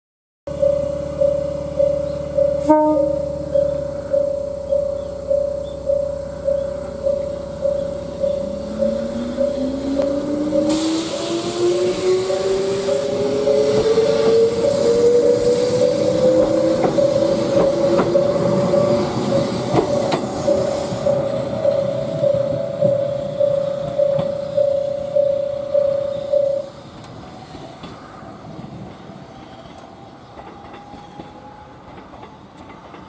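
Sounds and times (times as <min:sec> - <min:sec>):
pulsing alarm tone: 0:00.5 - 0:26.7
electric train pulling away: 0:00.5 - 0:33.0
wheels clacking over rail joints: 0:12.3 - 0:25.4, 0:28.6 - 0:33.0.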